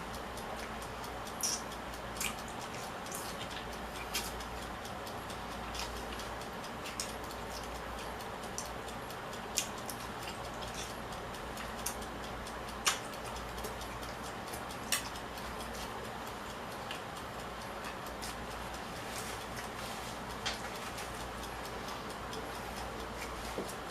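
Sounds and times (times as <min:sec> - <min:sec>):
steady low hiss: 0:00.0 - 0:23.9.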